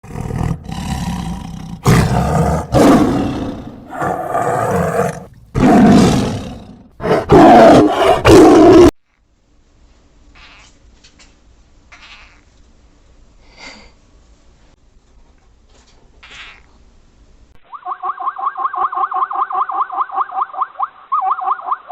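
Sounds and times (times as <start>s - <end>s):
large animal roaring: 0.0s - 8.9s.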